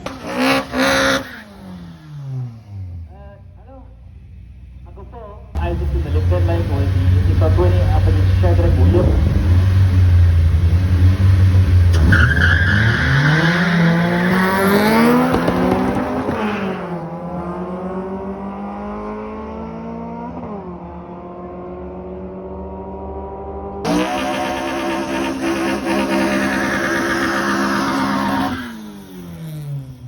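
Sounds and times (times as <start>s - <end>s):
drag racing car engine: 0.0s - 22.5s, 23.3s - 30.0s
engine at steady high pitch: 23.9s - 28.5s.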